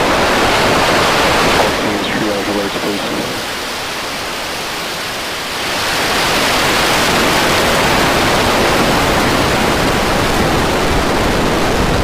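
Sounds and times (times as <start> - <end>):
rocket engines roaring: 1.6 - 3.8.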